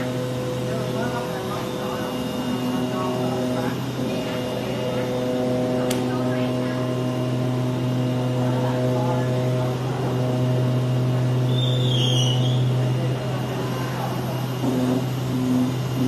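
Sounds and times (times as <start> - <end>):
cutting machine humming: 0.0 - 16.0
high squeak: 11.5 - 12.7.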